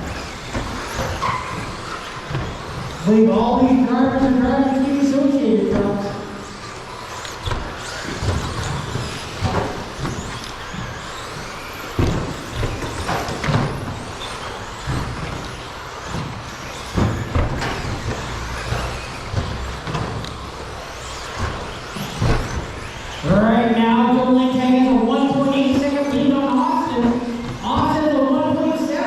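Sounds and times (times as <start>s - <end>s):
electric motors humming: 0.0s - 29.0s.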